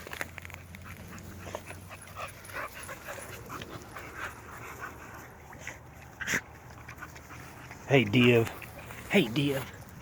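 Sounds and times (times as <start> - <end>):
rustles and clicks: 0.0 - 3.9
dog panting: 0.7 - 9.8.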